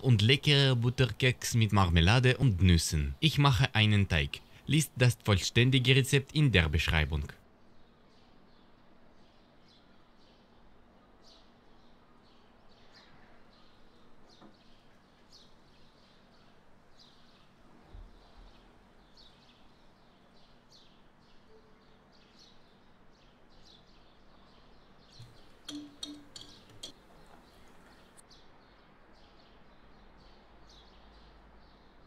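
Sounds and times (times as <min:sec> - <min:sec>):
faint bird chirps: 0:07.6 - 0:32.0.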